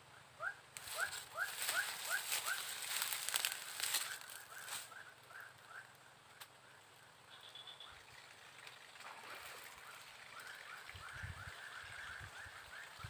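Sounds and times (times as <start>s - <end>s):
crackling and clicking noise: 5.8s - 6.6s.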